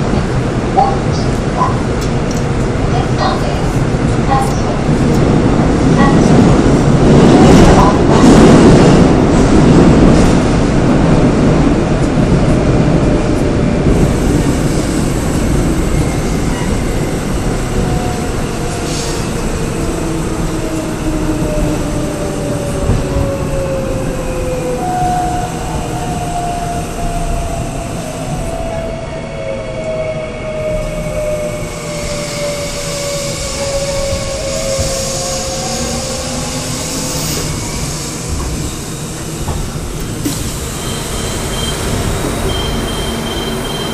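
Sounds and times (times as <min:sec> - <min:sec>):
electric train running on track: 0:00.0 - 0:43.9
train braking whine: 0:29.4 - 0:39.3, 0:40.2 - 0:43.9.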